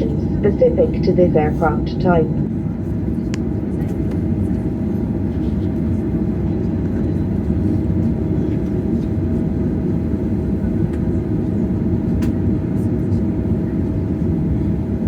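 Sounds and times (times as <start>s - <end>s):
mid-pitched hum: 0.0s - 6.1s
airplane cabin rumble: 0.0s - 15.0s.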